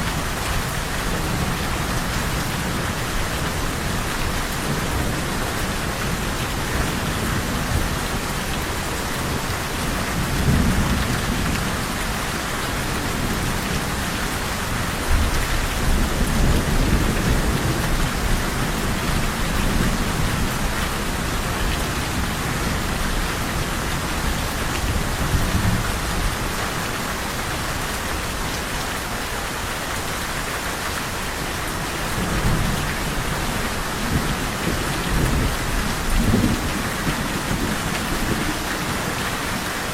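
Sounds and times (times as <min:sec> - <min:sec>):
heavy rain falling: 0:00.0 - 0:39.9
low thunder rumbling: 0:00.1 - 0:14.2, 0:15.0 - 0:28.6.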